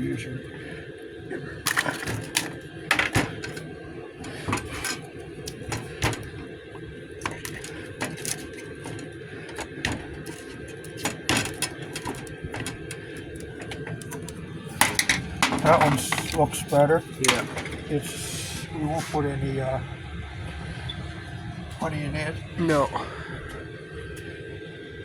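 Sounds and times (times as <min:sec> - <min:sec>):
steady low hum: 0:00.0 - 0:25.0
small objects clattering: 0:01.6 - 0:18.0.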